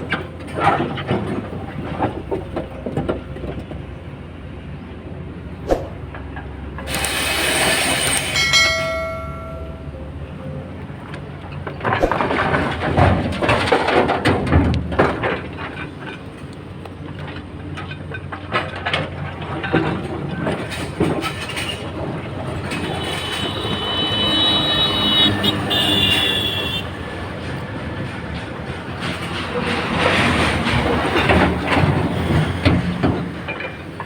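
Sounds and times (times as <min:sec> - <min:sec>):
excavator engine running: 0:00.0 - 0:34.0
high squeal: 0:22.8 - 0:26.9.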